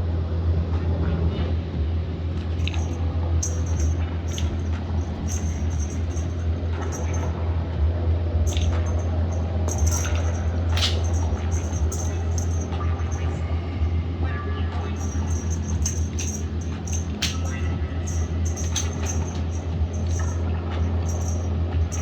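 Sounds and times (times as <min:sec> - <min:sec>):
steady low hum: 0:00.0 - 0:22.0
cat toy metallic jingles: 0:02.4 - 0:07.4, 0:08.5 - 0:13.8, 0:14.8 - 0:22.0.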